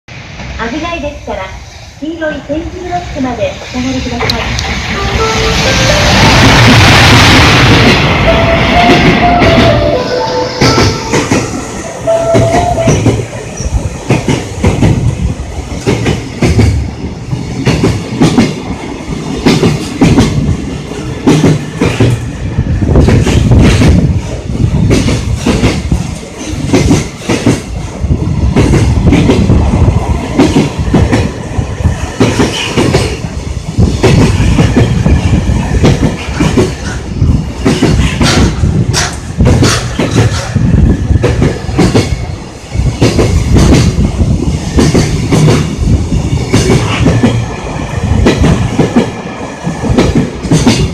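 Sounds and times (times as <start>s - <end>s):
train rumble: 0.1s - 50.9s
train wheels clattering over rail joints: 10.6s - 50.9s.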